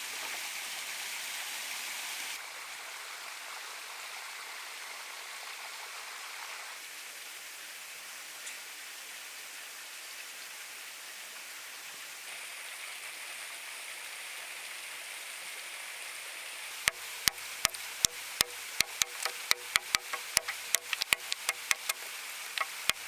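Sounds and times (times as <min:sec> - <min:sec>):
sharp knocks: 0:16.9 - 0:23.0
steady rushing hiss: 0:16.9 - 0:23.0.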